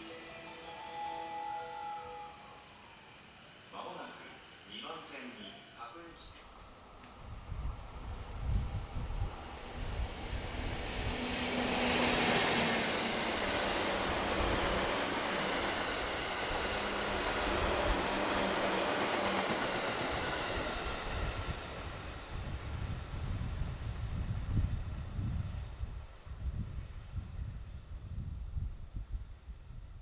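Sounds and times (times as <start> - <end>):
train wheels rumbling on rail: 6.4 - 29.9.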